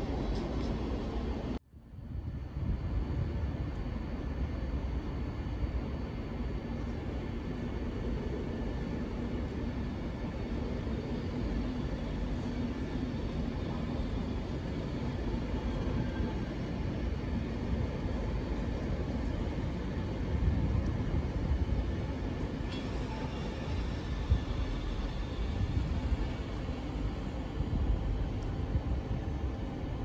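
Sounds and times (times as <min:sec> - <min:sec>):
train rumbling past: 0:00.0 - 0:01.6, 0:02.2 - 0:30.0.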